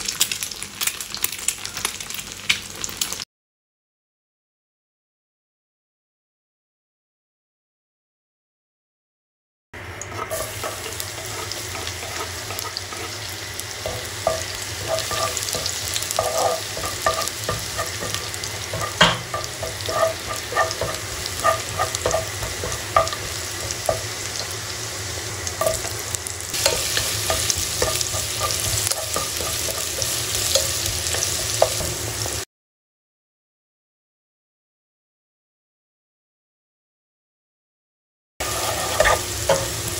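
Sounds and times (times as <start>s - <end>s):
garlic sizzling in hot oil: 0.0s - 3.2s, 9.8s - 32.5s, 38.4s - 39.9s
wooden spatula scraping pot: 10.1s - 24.5s, 25.6s - 32.0s, 38.4s - 39.9s.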